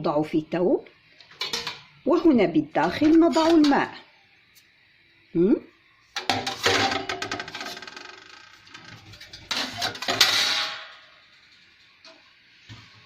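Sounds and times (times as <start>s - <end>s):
metal parts clattering: 9.0s - 11.1s.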